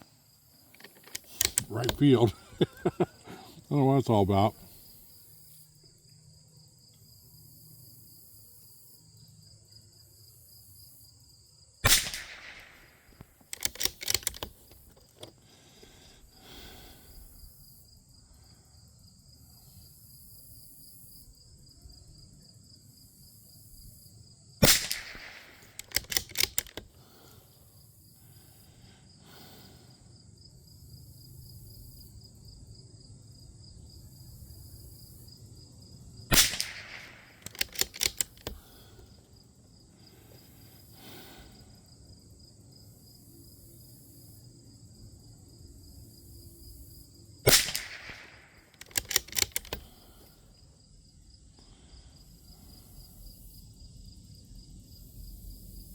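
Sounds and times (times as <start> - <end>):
rifle bolt metallic clicks: 0.7 - 2.9, 11.9 - 15.4, 24.6 - 27.0, 36.3 - 39.0, 47.5 - 50.2
rifle shots: 11.8 - 14.6, 24.6 - 26.8, 36.3 - 38.7, 47.5 - 49.9.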